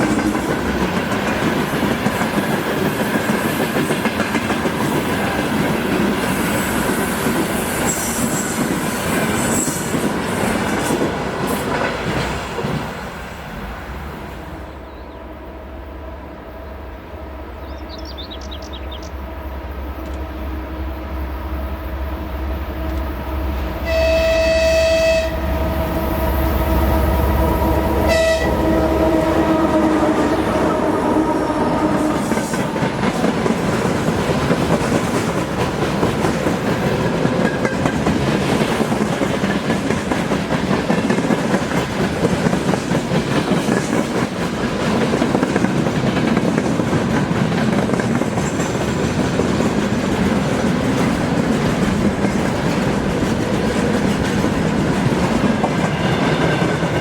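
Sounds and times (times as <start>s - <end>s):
train horn blast: 22.6s - 32.7s
wagon wheels clacking on rails: 31.5s - 57.0s.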